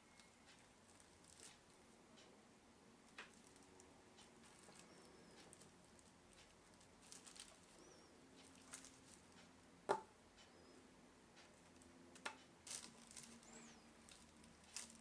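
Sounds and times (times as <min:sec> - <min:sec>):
faint clicks and taps: 0:03.1 - 0:10.6.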